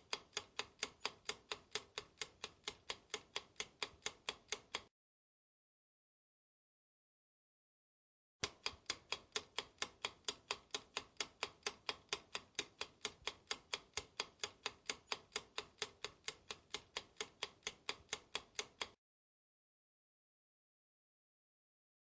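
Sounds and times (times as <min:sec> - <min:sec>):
clock ticking: 0:00.0 - 0:04.9, 0:08.4 - 0:19.0.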